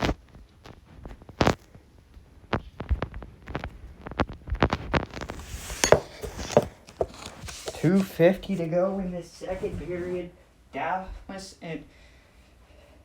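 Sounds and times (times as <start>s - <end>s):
hockey sticks knocking and tapping: 5.2s - 8.2s.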